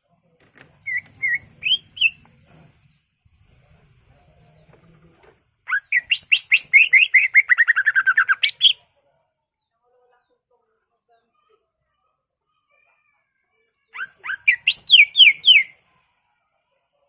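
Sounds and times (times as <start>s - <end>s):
bird singing whistled notes: 0.9s - 2.2s, 5.7s - 8.8s, 14.0s - 15.7s.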